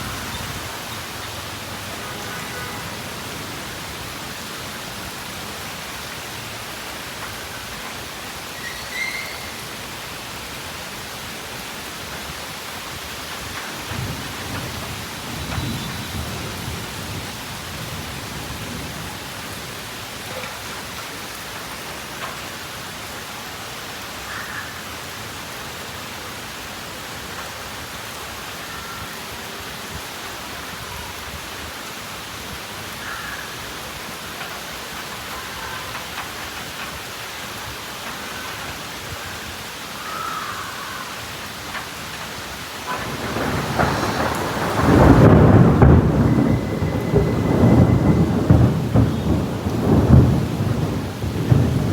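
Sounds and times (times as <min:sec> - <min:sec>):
low rumble of thunder: 0:00.0 - 0:08.0, 0:12.8 - 0:21.0, 0:41.7 - 0:51.9
steady rain falling: 0:00.0 - 0:51.9.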